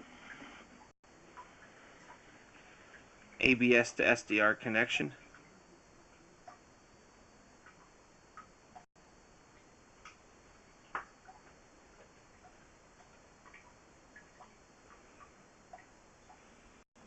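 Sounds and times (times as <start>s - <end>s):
faint small clicks and ticks: 9.5s - 10.2s, 10.8s - 16.6s.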